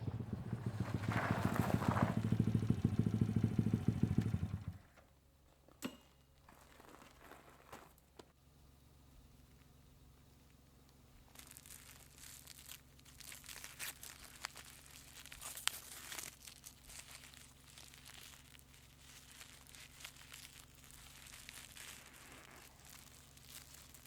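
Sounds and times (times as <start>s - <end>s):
rustling and scraping of hand work: 4.8s - 8.4s, 11.2s - 24.0s.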